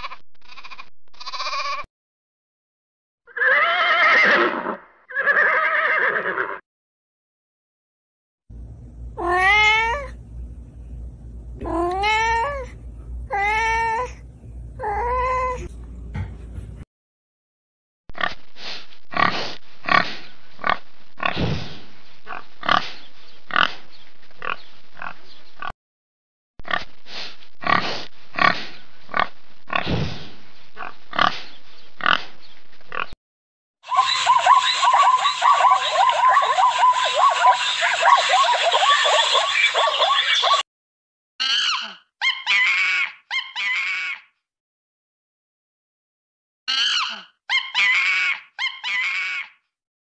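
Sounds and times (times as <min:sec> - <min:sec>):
kittens meowing: 0:00.5 - 0:01.8
low hum: 0:08.5 - 0:16.8.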